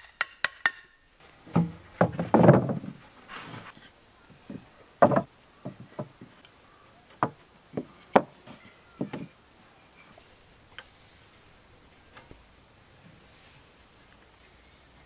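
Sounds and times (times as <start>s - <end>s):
wooden knocks and taps: 1.5s - 3.0s, 4.5s - 6.4s.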